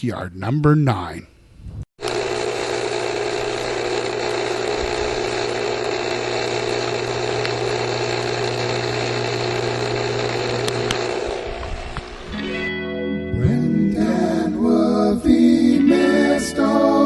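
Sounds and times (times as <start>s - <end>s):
motor-driven machine humming: 2.0s - 12.4s.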